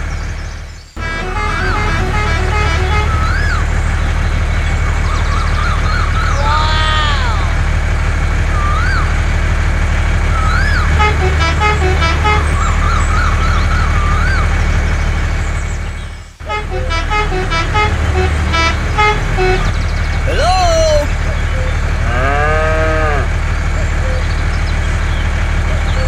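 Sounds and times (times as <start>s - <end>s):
vehicle engine running: 0.0s - 20.3s, 21.1s - 26.0s
musical horn tooting: 1.0s - 4.1s, 10.6s - 12.7s, 16.4s - 19.8s
chirping whistles: 8.5s - 9.2s, 10.3s - 11.0s, 12.5s - 15.1s.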